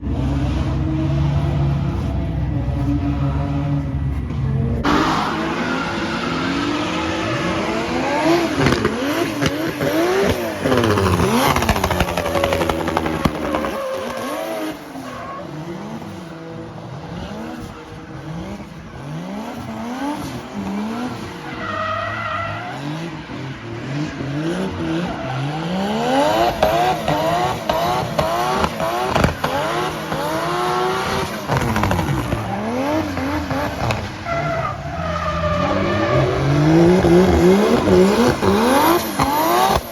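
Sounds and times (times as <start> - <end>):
car engine revving: 0.0 - 39.9
tyres squealing: 4.9 - 15.7, 24.9 - 39.8.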